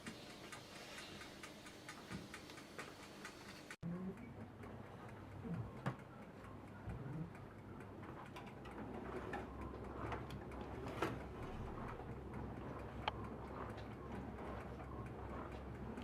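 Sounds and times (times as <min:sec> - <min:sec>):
low steady hum: 0:03.2 - 0:16.0.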